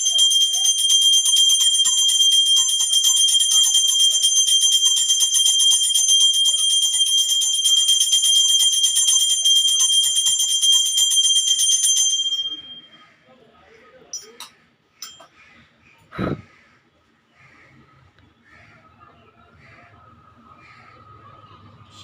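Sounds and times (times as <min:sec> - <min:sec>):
hand bell rung rapidly: 0:00.0 - 0:12.9.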